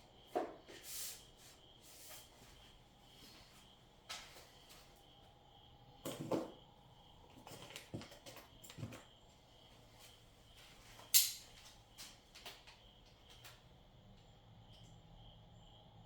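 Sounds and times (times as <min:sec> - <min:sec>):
sharp click: 0:11.1 - 0:11.5.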